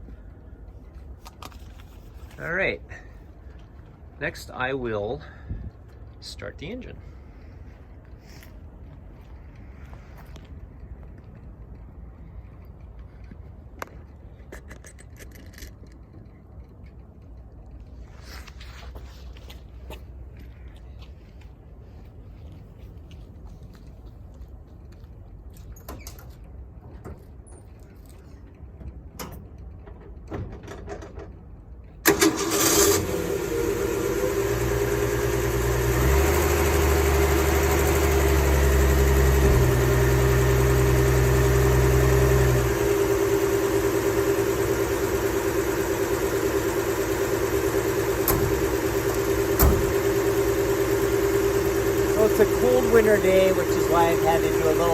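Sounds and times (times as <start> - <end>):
engine starting and idling: 32.0 - 54.9.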